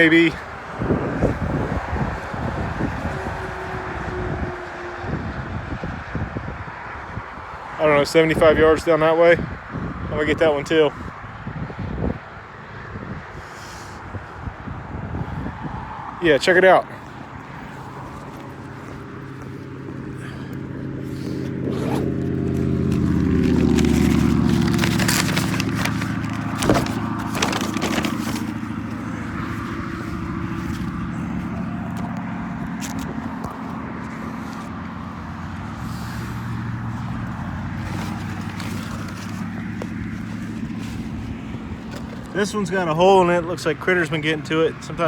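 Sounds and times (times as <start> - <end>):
highway traffic noise: 0.0 - 45.0
vehicle passing by: 14.9 - 43.5
scraping and rustling on microphone: 16.9 - 42.6.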